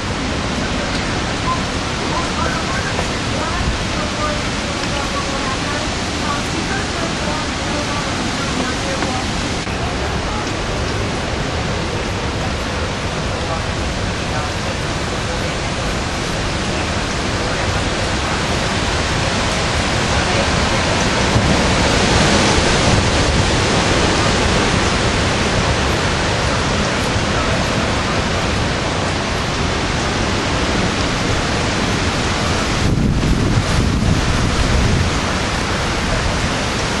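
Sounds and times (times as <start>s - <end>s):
hurricane wind: 0.0s - 37.0s
rain: 0.0s - 37.0s.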